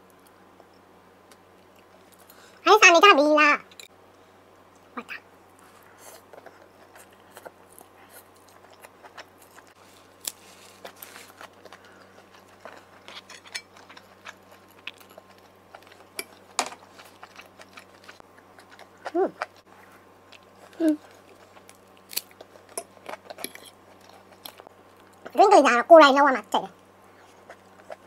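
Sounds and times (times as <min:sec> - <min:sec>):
person chewing noodles: 0:05.6 - 0:25.3.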